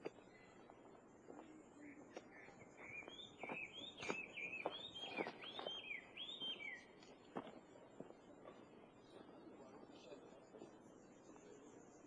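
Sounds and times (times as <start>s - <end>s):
songbird singing: 1.8s - 6.9s.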